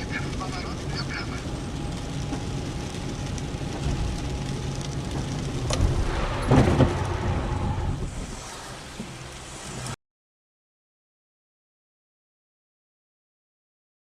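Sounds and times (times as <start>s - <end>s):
car engine and road rumble: 0.0s - 10.0s
short rough noise: 5.6s - 10.0s.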